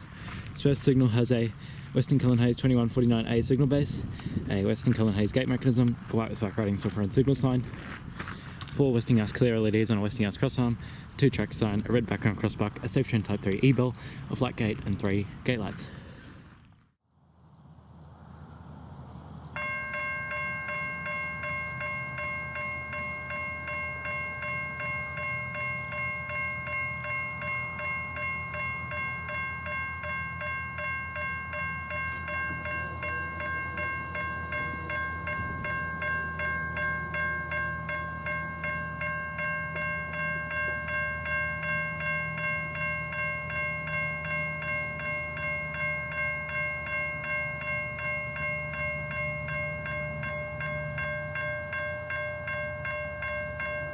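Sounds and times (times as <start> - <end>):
low steady rumble: 17.1 - 53.9
level crossing bells ringing: 19.6 - 53.9.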